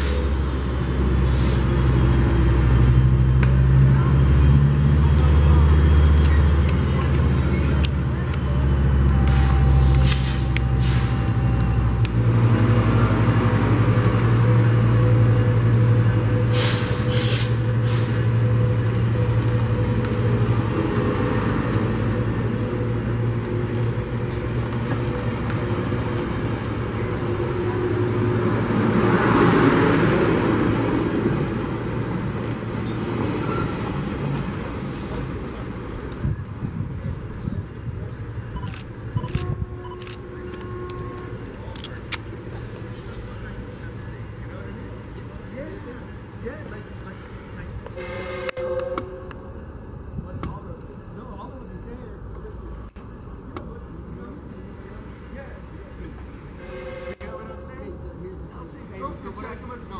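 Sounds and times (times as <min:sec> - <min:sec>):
diesel train engine drone: 0:00.0 - 0:59.9
air hisses: 0:16.5 - 0:18.2.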